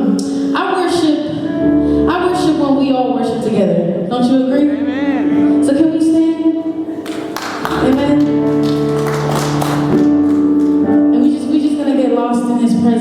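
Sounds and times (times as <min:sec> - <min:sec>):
slow worship music chords: 0:04.0 - 0:12.2.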